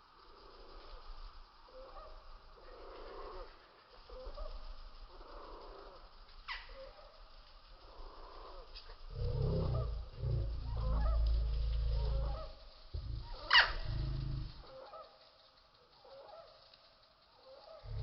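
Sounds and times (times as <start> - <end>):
hummingbird wings humming: 8.3 - 15.0.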